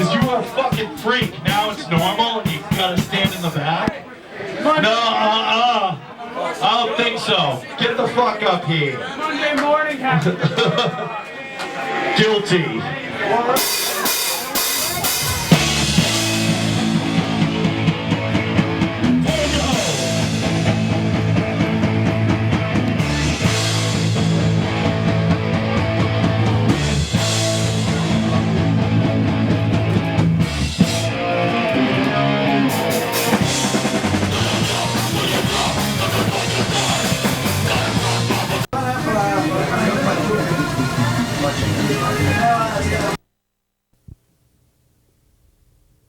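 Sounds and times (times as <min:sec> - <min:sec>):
punk band playing live: 0:00.0 - 0:03.7, 0:13.5 - 0:43.2.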